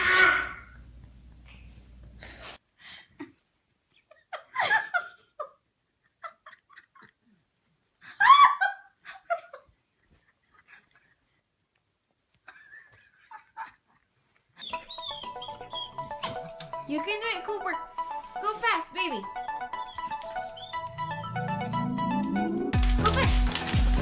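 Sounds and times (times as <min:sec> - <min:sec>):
person laughing: 0:16.0 - 0:16.9.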